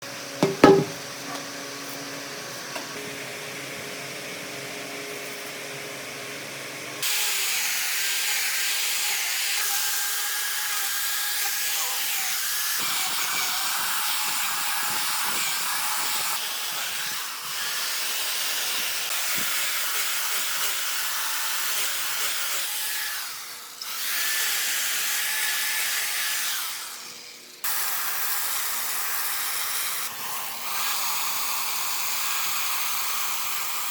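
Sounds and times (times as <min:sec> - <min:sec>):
power tool whining on wood: 0:00.1 - 0:33.9
sharp knock: 0:00.4 - 0:01.0.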